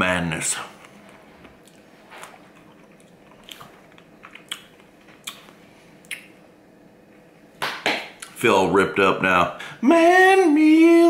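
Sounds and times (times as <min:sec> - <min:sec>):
person chewing strawberries: 0:00.7 - 0:06.3
wet mouth smacks: 0:01.6 - 0:06.4.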